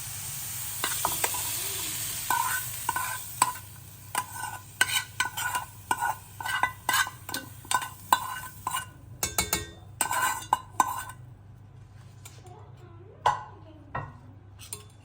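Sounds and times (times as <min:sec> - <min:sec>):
metal utensil scraping in a pot: 0:02.2 - 0:11.2, 0:14.6 - 0:15.0.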